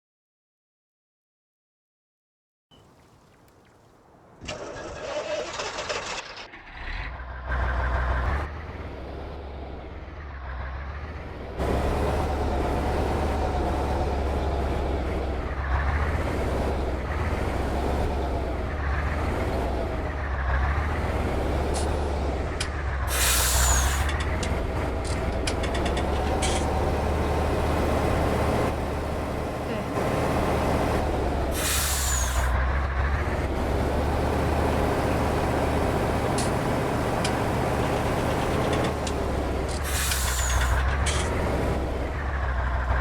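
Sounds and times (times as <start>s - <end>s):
diesel truck engine working hard: 4.4s - 43.0s
air brake hiss: 23.1s - 24.1s, 31.6s - 32.5s, 39.8s - 40.8s.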